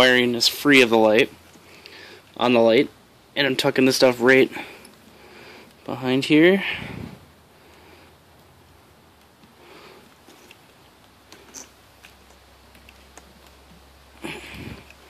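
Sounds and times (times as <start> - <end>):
rustling of wires: 0.0 - 2.8, 3.4 - 15.0
small plastic ticks: 9.2 - 14.2.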